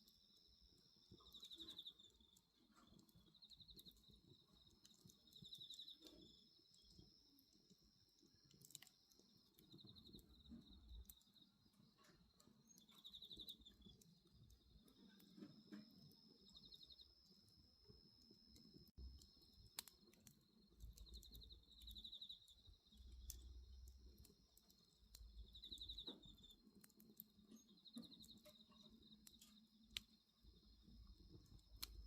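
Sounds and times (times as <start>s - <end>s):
insects trilling: 0.0s - 32.0s
wood bonfire crackling: 0.0s - 32.0s
insect pulsed chirps: 3.2s - 26.7s.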